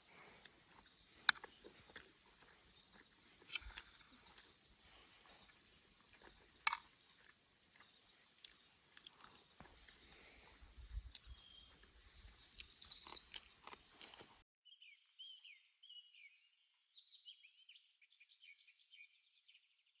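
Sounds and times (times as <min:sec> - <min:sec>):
chewing and crunching: 0:00.0 - 0:11.8, 0:12.5 - 0:14.4
faint birds chirping: 0:00.0 - 0:19.7.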